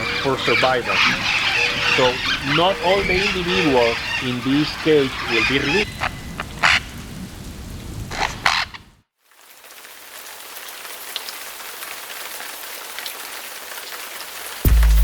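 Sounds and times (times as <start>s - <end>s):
parrot squawks: 0.0s - 6.9s
rain hissing: 0.0s - 15.0s.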